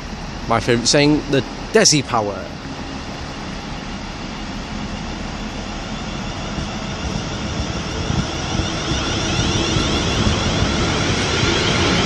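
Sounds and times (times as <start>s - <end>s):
train rumble: 0.0s - 12.0s
electric train motor whine: 2.5s - 12.0s.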